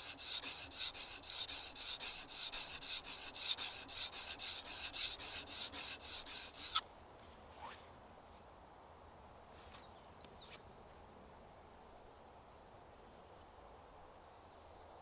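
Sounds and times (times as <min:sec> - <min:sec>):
hand tool rasping on timber: 0:00.0 - 0:06.8.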